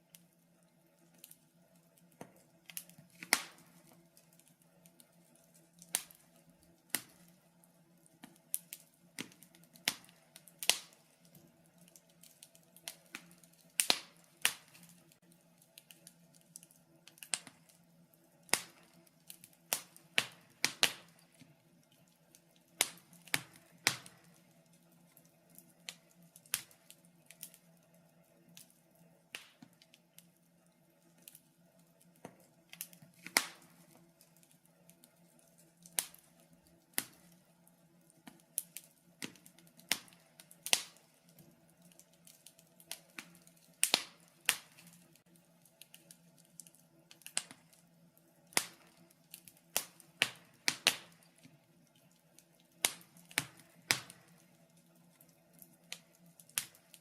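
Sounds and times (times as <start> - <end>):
faint steady hum: 0.0 - 57.0
wood fire crackling and popping: 0.0 - 57.0.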